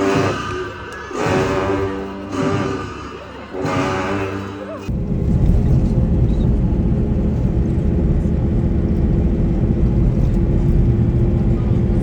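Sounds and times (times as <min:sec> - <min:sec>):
vehicle rumbling under way: 0:04.9 - 0:12.0.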